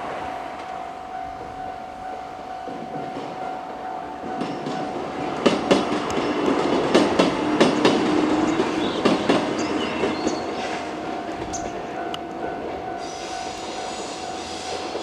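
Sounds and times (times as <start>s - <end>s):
train rolling rumble: 0.0s - 15.0s
train wheels clacking over rail joints: 4.2s - 15.0s.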